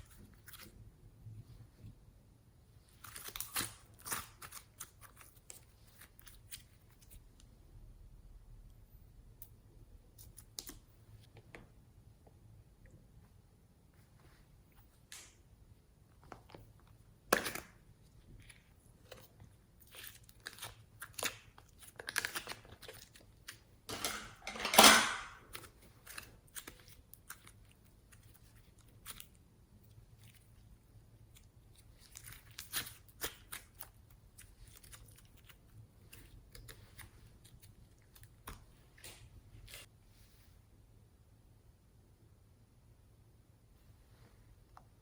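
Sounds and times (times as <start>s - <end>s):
slime clicking and crackling: 31.2s - 39.9s.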